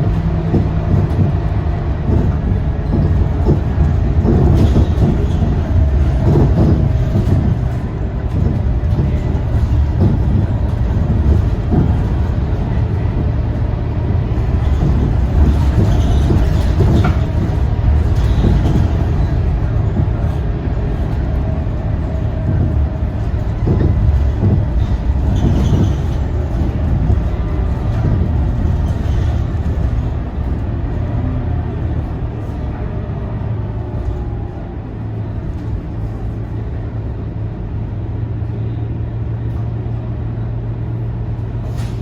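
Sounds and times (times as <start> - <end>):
body rattles and knocks: 0.0 - 32.6
bus engine drone: 0.0 - 42.0.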